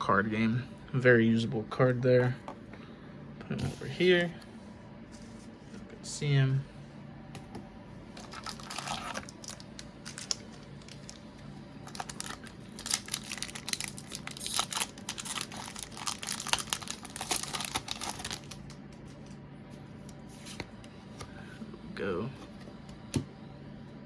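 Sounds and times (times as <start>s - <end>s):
foil wrapper crinkling and tearing: 8.2s - 19.2s.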